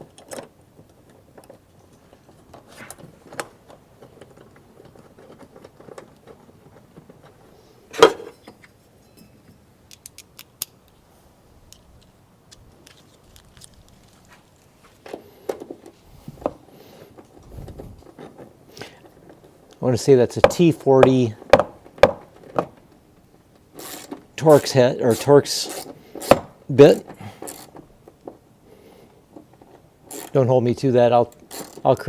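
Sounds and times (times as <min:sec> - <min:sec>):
hand tool clicking on bolt: 0:09.9 - 0:11.0, 0:20.4 - 0:22.8, 0:23.6 - 0:28.4, 0:29.4 - 0:30.4, 0:31.2 - 0:32.0.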